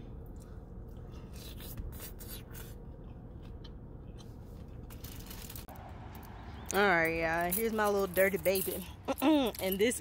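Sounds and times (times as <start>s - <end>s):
low steady hum: 0.0s - 10.0s
person chewing crunchy food: 0.2s - 5.6s.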